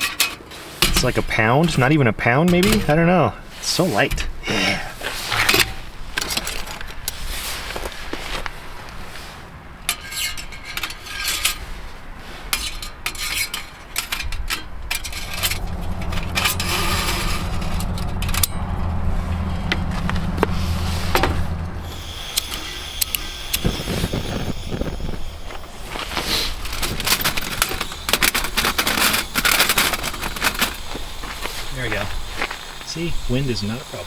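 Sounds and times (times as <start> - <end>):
steady low rumble: 14.7 - 27.7.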